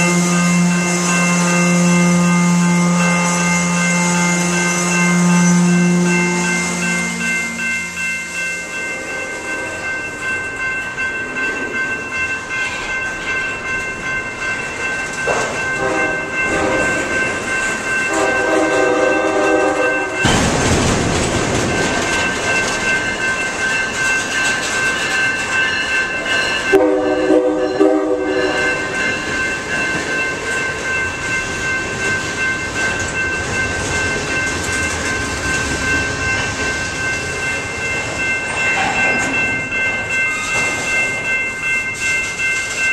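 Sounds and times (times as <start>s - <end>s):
locomotive horn blasts: 0.0s - 7.7s, 15.8s - 17.0s, 18.1s - 20.2s, 26.7s - 28.5s
high ringing tones: 0.0s - 20.6s, 21.5s - 42.9s
train rolling on rails: 0.0s - 42.9s.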